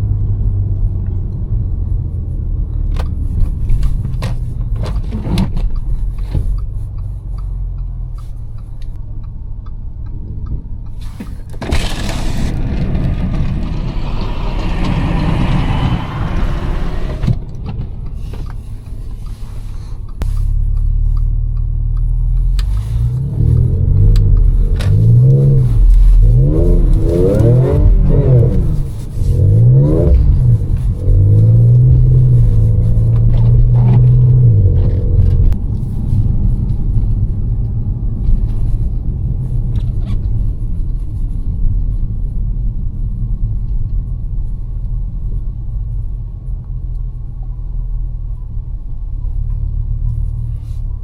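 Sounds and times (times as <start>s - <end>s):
car engine drone from inside: 0.0s - 51.0s
clicks and scrapes: 11.0s - 21.3s.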